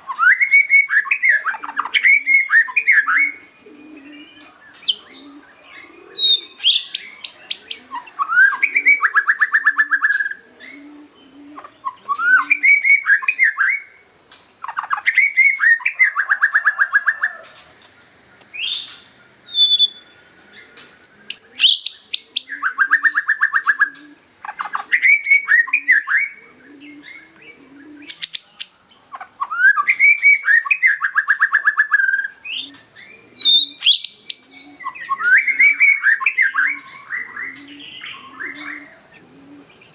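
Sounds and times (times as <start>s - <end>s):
songbird whistling and trilling: 0.0s - 10.9s, 11.6s - 14.0s, 14.6s - 17.5s, 18.6s - 20.1s, 21.0s - 28.8s, 29.4s - 39.9s.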